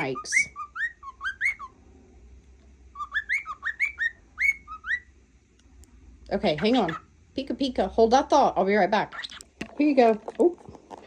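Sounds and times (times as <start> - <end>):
cockatiel whistling: 0.0 - 1.7, 2.9 - 5.1.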